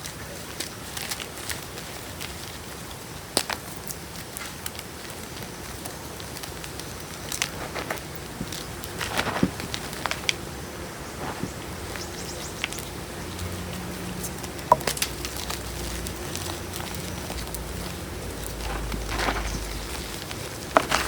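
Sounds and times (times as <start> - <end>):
chalk crunching between fingers: 11.1 - 21.0.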